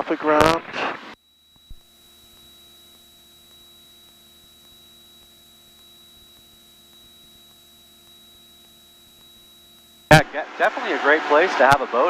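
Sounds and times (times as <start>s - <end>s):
electrical hum and hiss: 0.0s - 12.0s
thin high-pitched whine: 0.0s - 12.0s.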